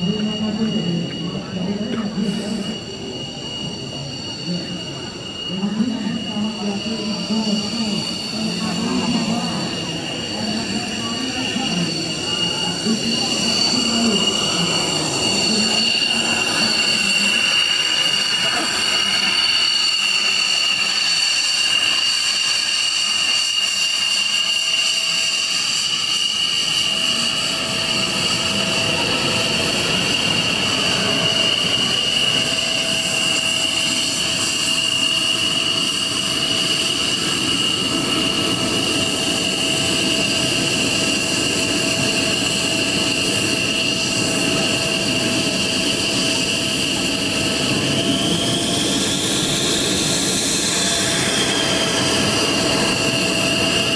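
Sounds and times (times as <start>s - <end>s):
jet engine whine: 0.0s - 53.9s.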